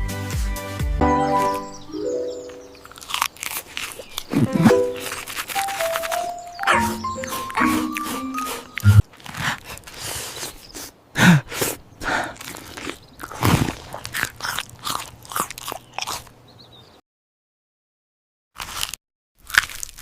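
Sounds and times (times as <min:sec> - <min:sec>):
crunchy biting and chewing: 0:02.8 - 0:16.4, 0:18.6 - 0:20.0.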